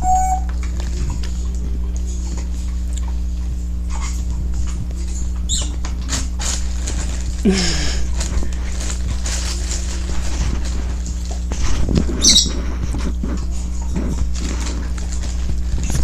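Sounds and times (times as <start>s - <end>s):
steady low hum: 0.0s - 16.0s
bird scratching and pecking: 3.9s - 7.4s, 8.0s - 16.0s
chick chirping and squeaking: 5.5s - 5.8s, 12.1s - 12.6s.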